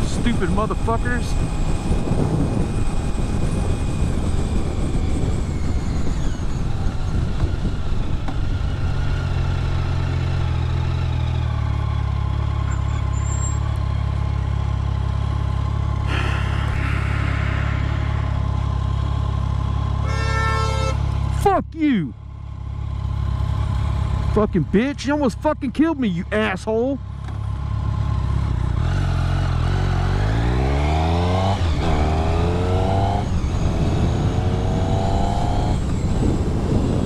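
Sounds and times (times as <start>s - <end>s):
wind rush on microphone: 0.0s - 9.0s, 31.4s - 37.0s
motorcycle engine: 0.0s - 37.0s.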